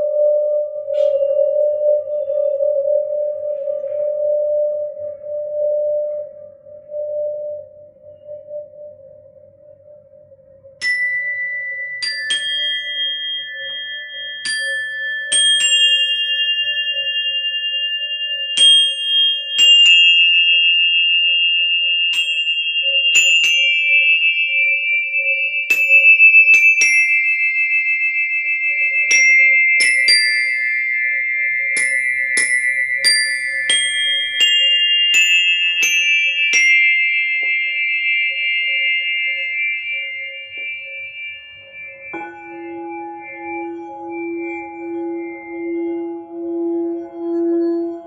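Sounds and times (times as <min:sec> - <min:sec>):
singing bowl humming: 0:00.0 - 0:48.0
high metal chimes ringing: 0:10.8 - 0:48.0.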